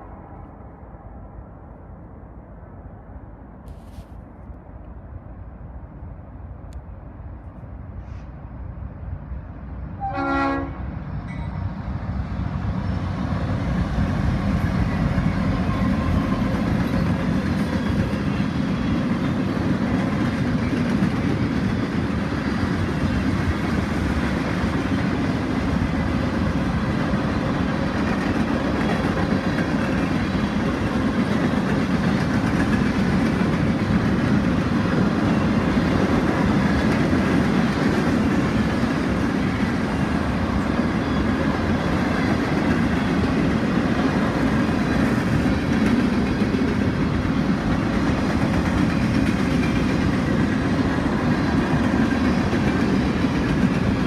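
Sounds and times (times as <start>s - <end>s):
train wheels on rail: 3.6s - 54.0s
train horn blast: 10.0s - 11.6s.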